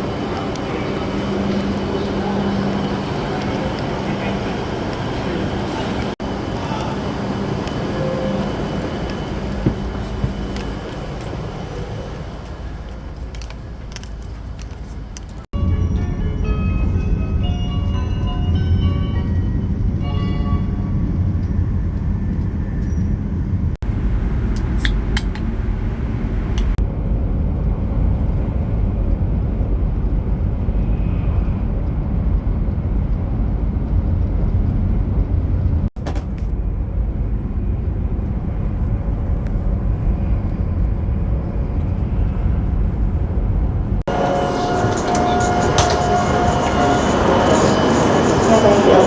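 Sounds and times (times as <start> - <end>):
moving train rumble: 0.0 - 49.0
high-pitched squeal: 44.1 - 49.0.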